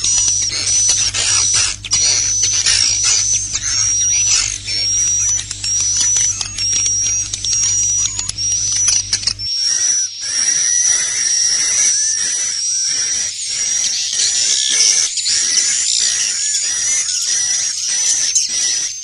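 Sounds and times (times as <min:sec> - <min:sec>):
low hum: 0:00.0 - 0:09.5
rapid clicking: 0:00.0 - 0:09.5
swiftlets chirping and twittering: 0:00.0 - 0:19.0.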